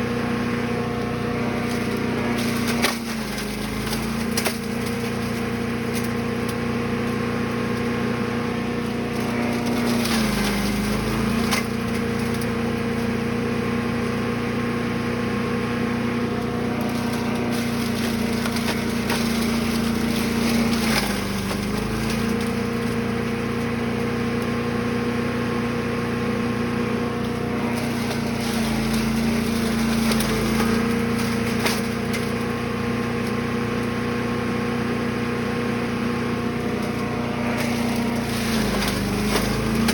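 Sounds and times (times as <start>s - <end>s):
small gasoline engine running: 0.0s - 39.9s
wood cracking and splintering: 0.9s - 8.0s, 8.7s - 14.3s, 16.2s - 24.5s, 27.1s - 34.0s, 36.4s - 39.9s.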